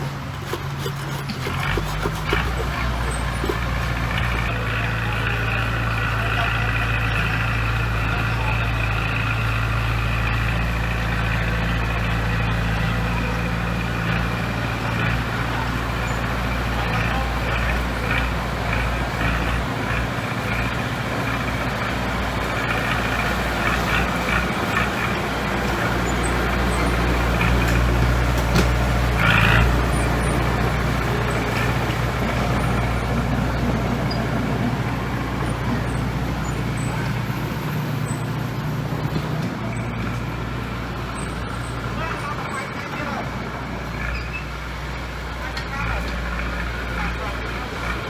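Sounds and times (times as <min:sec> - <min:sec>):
heavy diesel engine running: 0:00.0 - 0:48.0.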